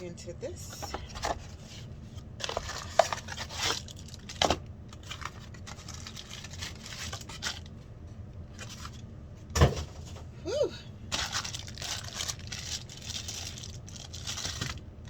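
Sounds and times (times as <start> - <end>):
packaging tearing and rustling: 1.1 - 7.7, 8.5 - 9.0, 11.1 - 14.9.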